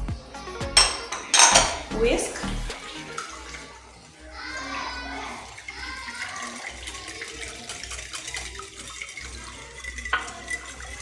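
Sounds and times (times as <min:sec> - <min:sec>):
whisk clinking against bowl: 0:00.8 - 0:02.0, 0:02.9 - 0:11.0
whisk stirring watery sauce: 0:02.6 - 0:11.0.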